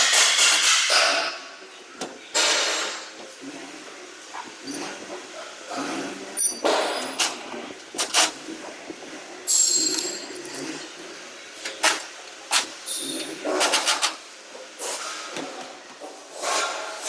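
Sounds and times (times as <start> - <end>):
metal ringing and scraping: 9.5 - 10.8.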